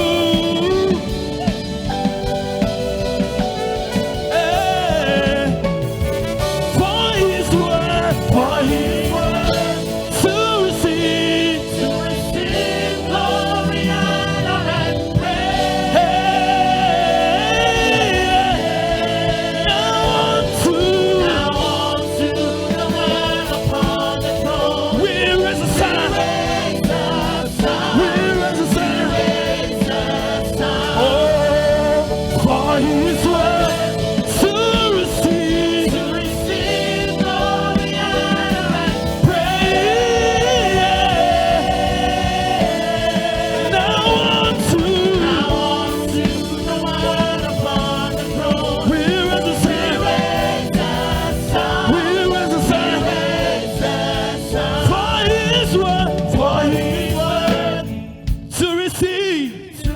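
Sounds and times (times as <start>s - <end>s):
choir singing gospel: 0.0s - 59.9s
live band playing: 0.0s - 59.9s.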